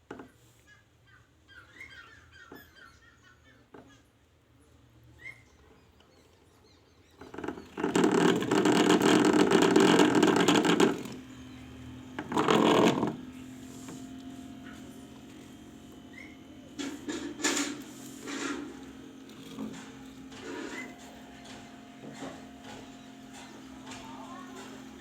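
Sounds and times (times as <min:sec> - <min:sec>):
small electric motor running: 0:07.3 - 0:25.0.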